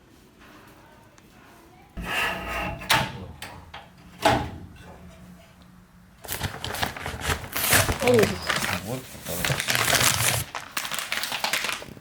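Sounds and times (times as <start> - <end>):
low steady hum: 0.8 - 8.0.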